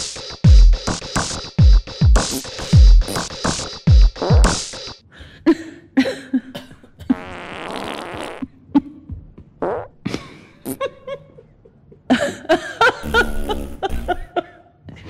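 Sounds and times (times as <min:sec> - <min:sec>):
farting: 0:07.1 - 0:08.5, 0:09.6 - 0:10.0, 0:13.0 - 0:14.2.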